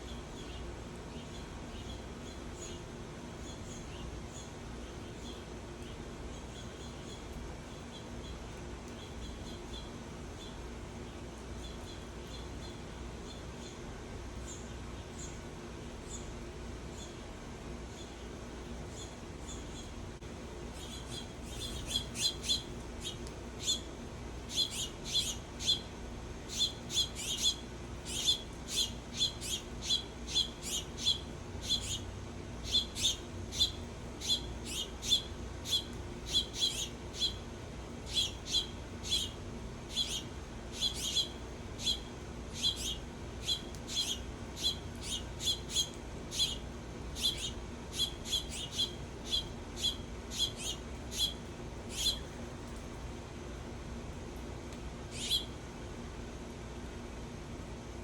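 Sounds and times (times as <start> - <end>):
songbird chip notes: 38.1 - 52.3, 55.1 - 55.6.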